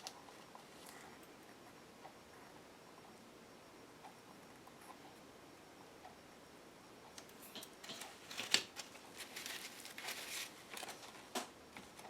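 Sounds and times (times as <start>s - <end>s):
paper rustling and scraping: 7.9s - 12.0s.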